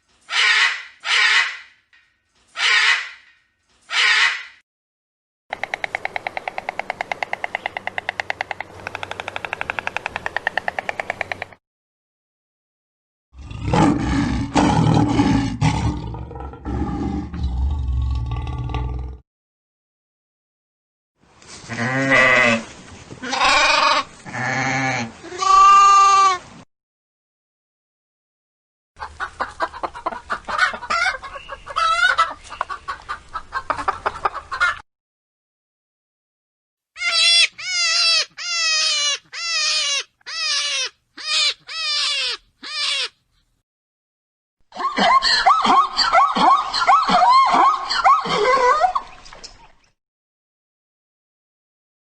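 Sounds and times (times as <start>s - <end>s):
wavering bleats: 21.7s - 26.3s.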